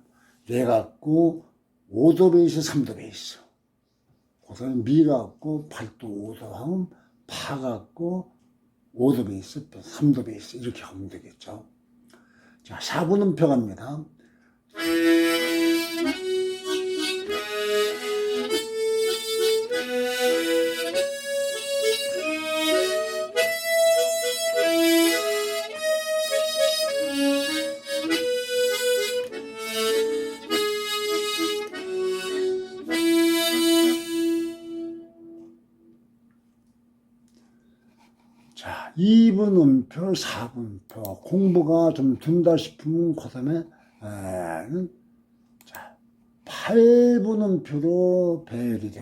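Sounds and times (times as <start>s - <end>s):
harmonica playing rhythm chords: 14.7s - 35.6s.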